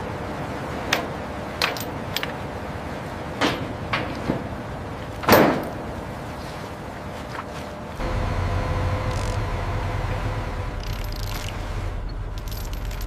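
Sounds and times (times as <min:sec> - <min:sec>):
steady background noise: 0:00.0 - 0:13.0
metal knocks and clanks: 0:10.7 - 0:13.0.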